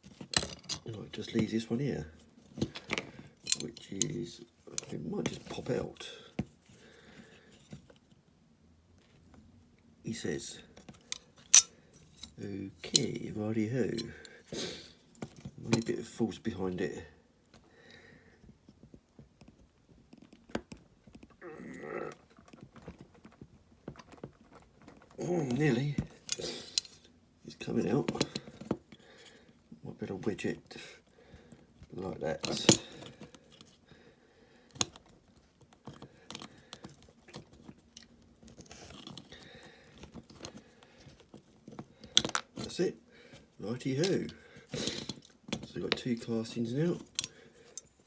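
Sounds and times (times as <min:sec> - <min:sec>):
clicks of plastic parts handled: 0:00.0 - 0:01.5, 0:02.1 - 0:06.6, 0:10.8 - 0:13.2, 0:22.3 - 0:27.1, 0:32.4 - 0:33.8, 0:34.7 - 0:42.8, 0:43.9 - 0:46.2, 0:46.9 - 0:48.0.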